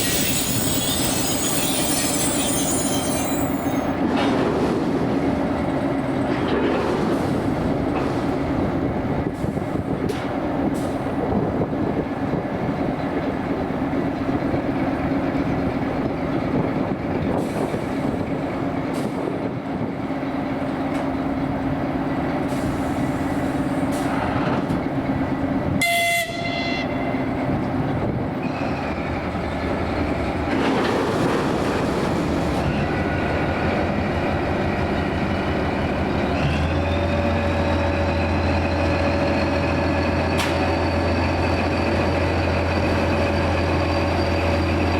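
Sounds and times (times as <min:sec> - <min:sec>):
train rumbling on rails: 0:00.0 - 0:44.9
train horn blast: 0:25.8 - 0:27.2.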